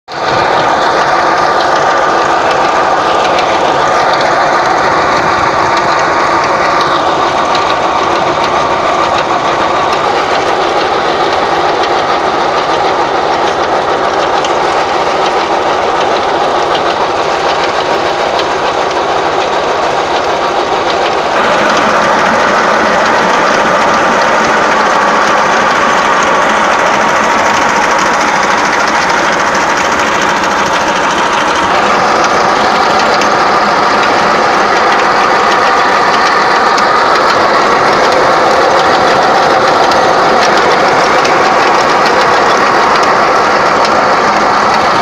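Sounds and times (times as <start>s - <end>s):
tractor engine running: 0.1s - 45.0s.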